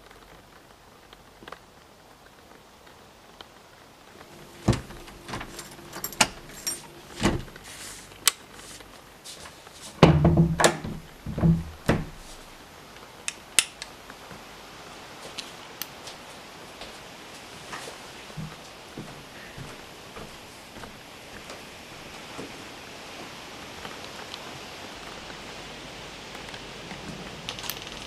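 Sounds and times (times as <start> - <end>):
key clicking in old lock: 4.2 - 7.7.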